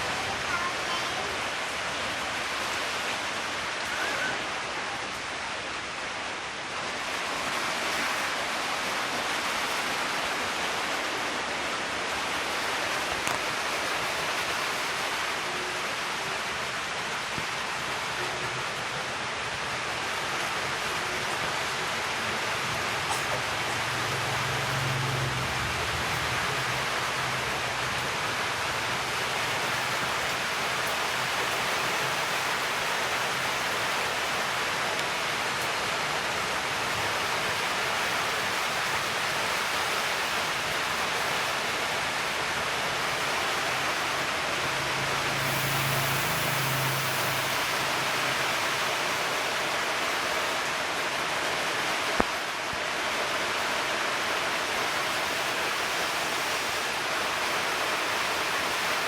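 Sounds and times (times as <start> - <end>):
machine low hum: 44.6 - 49.4
welding torch hissing: 45.2 - 49.3.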